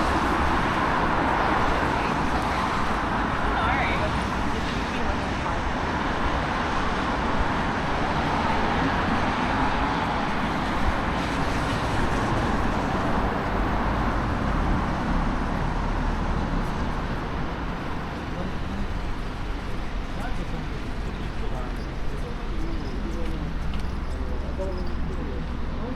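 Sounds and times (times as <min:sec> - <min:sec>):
traffic on wet street: 0:00.0 - 0:25.9.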